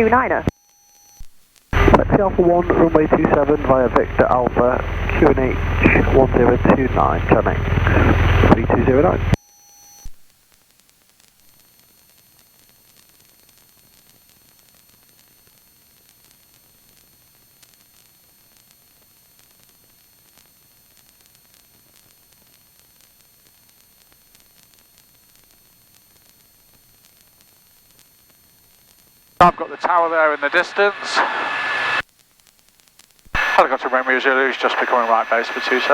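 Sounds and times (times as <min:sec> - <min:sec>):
high-pitched whines: 0:00.0 - 0:10.1, 0:29.4 - 0:32.0, 0:33.4 - 0:35.9
electronic hiss: 0:11.2 - 0:35.9.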